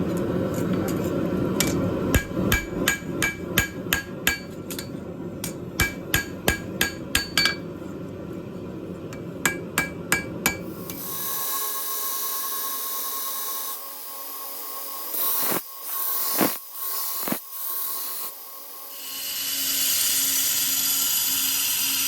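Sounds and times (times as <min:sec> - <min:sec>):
hammer ringing on steel: 0:02.2 - 0:04.9, 0:05.8 - 0:07.7, 0:09.5 - 0:10.7.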